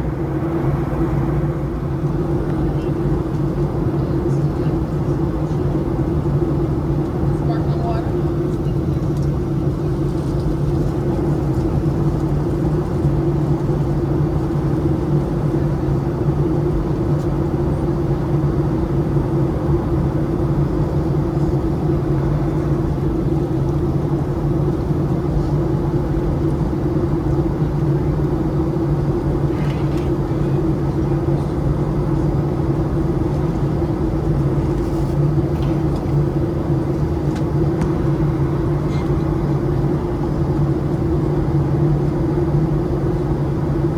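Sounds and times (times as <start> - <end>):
low steady hum: 0.0 - 5.6
airliner cabin engine drone: 0.0 - 43.9.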